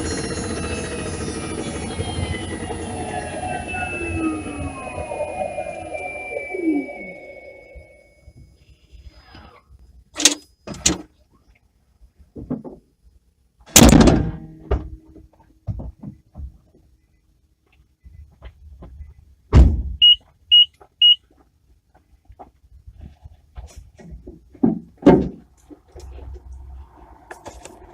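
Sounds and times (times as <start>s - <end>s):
high electronic beeps: 0.2s - 8.6s, 20.0s - 21.2s.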